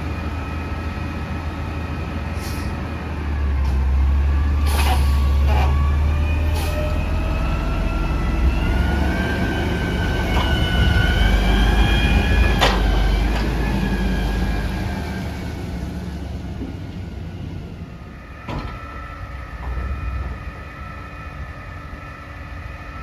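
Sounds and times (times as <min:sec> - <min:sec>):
garbage truck engine rumbling: 0:00.0 - 0:21.1
steady high whine: 0:17.2 - 0:23.0.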